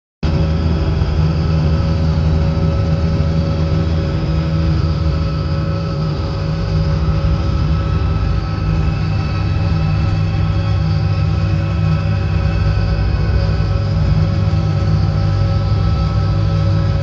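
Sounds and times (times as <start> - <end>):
helicopter engine and rotors drone: 0.2 - 17.0
steady whining tones: 0.2 - 17.0.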